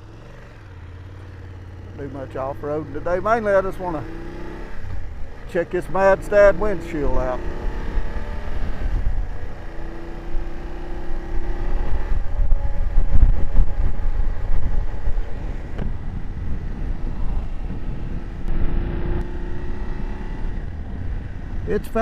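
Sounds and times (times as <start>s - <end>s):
motorcycle engine running: 0.0s - 22.0s
wind on microphone: 7.5s - 9.6s, 10.3s - 21.7s.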